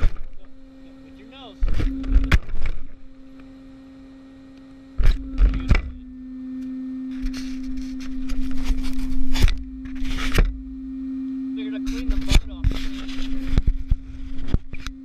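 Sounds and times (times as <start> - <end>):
electric motor whine: 0.0 - 15.0
rough driving noise: 0.0 - 15.0.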